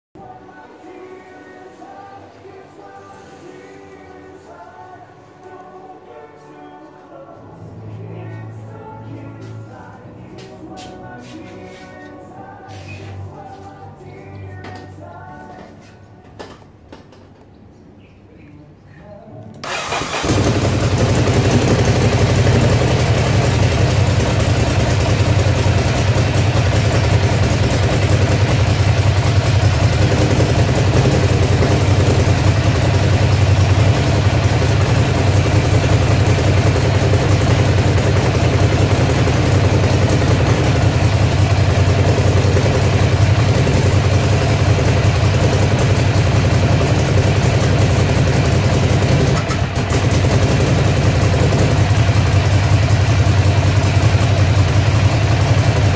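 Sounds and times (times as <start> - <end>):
motorcycle engine idling: 19.6 - 55.9.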